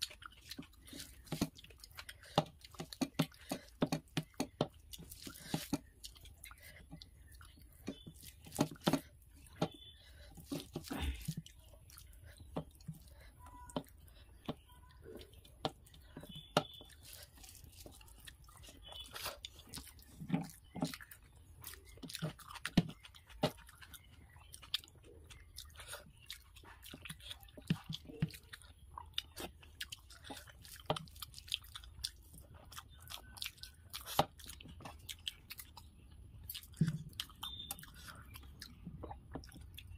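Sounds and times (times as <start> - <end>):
person chewing food: 0.0 - 39.9
wet mouth clicks: 36.5 - 39.9.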